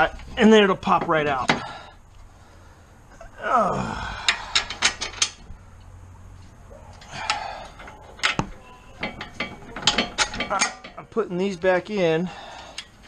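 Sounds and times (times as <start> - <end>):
metallic clicks of lug nuts and tools: 4.2 - 11.2, 12.6 - 13.0.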